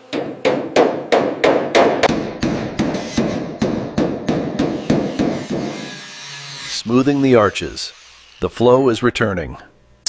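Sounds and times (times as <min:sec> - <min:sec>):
hammer striking metal: 0:00.1 - 0:05.8.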